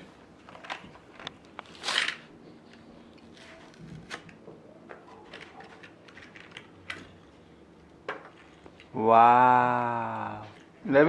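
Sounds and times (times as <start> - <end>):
toy packaging rustling: 0.5 - 4.4, 5.1 - 7.2
packaging clicks and crinkles: 5.0 - 7.2.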